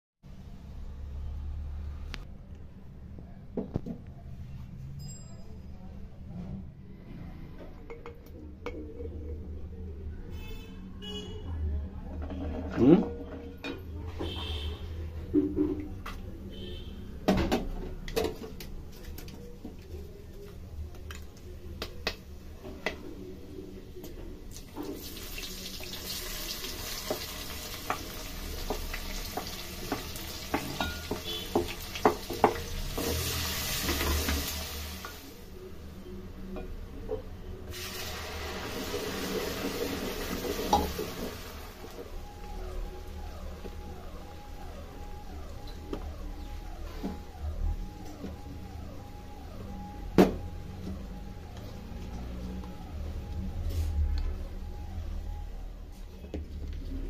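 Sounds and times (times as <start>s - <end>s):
spices and onion sizzling in oil: 24.6s - 35.5s, 37.6s - 43.2s
spoon and bowl clinking on pot: 30.5s - 32.6s.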